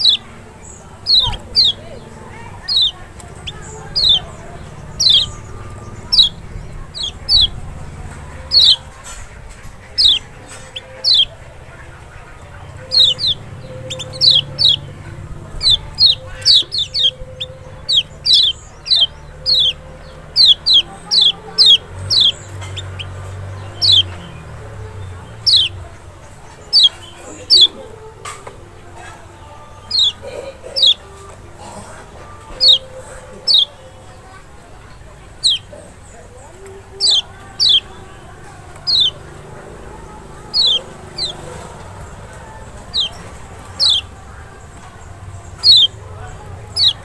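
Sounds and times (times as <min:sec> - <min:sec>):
bird chirps sliding downward: 0:00.0 - 0:09.2, 0:09.9 - 0:11.4, 0:12.8 - 0:25.9, 0:29.8 - 0:30.2, 0:32.5 - 0:33.7, 0:35.3 - 0:35.7, 0:37.0 - 0:38.0, 0:38.7 - 0:44.1, 0:45.6 - 0:46.0, 0:46.7 - 0:47.0.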